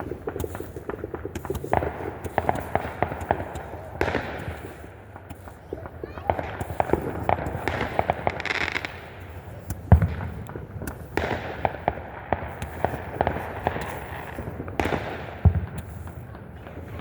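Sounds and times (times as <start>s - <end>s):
fireworks popping and crackling: 0.0s - 17.0s
loud firework bangs: 0.0s - 17.0s.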